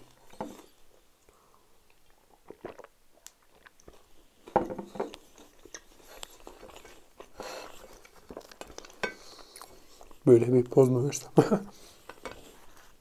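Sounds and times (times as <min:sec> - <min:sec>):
man chewing: 0:00.0 - 0:10.2.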